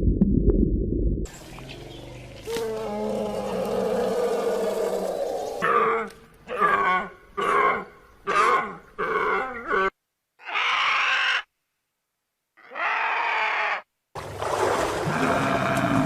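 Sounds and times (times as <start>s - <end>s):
long harsh animal calls: 2.4s - 11.5s, 12.6s - 13.9s.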